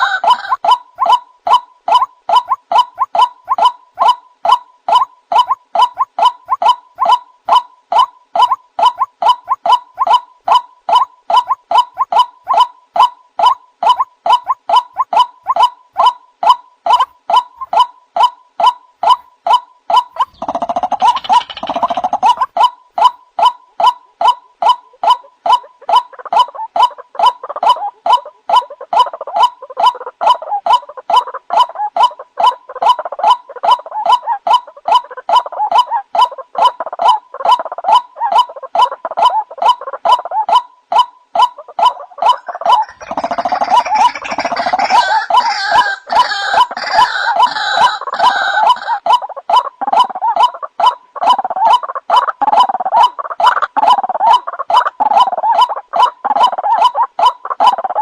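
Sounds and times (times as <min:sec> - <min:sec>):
waterhen croaking calls: 0:00.0 - 0:58.0.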